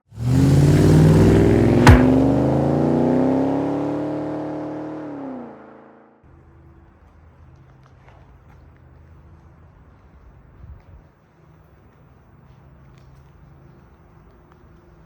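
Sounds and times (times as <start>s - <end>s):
car engine revving: 0.1s - 5.8s
sharp crack: 1.4s - 2.7s.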